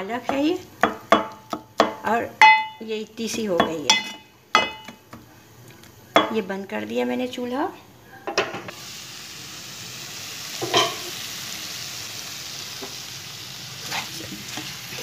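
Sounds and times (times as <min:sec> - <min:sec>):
spatula scraping and knocking pan: 0:00.2 - 0:05.0
vegetables sizzling in frying pan: 0:08.7 - 0:15.0.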